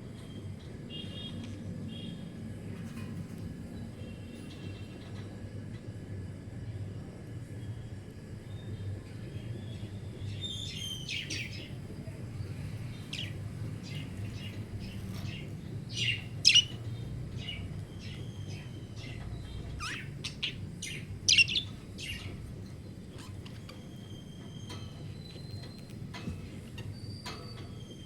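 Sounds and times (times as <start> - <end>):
budgerigars chirping: 13.1 - 22.4.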